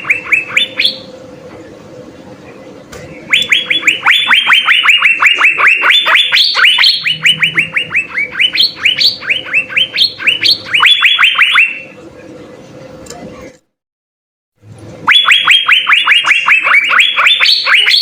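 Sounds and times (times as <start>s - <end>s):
bird whistling sharp notes: 3.3s - 11.8s.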